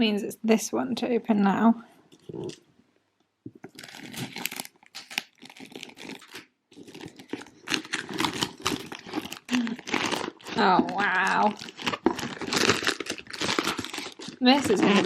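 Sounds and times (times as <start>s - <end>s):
packaging crinkling and tearing: 3.5s - 15.0s.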